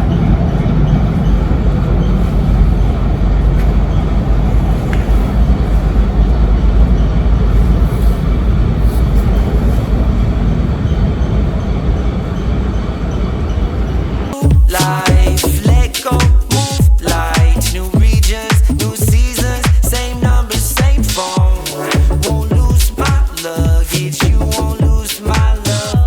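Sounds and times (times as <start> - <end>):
train rumbling on tracks: 0.0 - 14.8.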